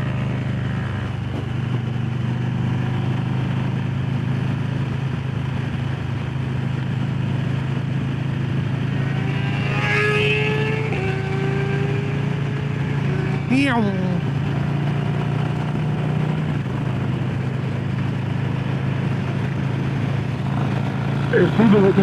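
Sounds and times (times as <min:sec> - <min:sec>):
engine rising in pitch: 0:08.5 - 0:15.6, 0:20.4 - 0:22.0
motorcycle engine idling: 0:20.2 - 0:22.0.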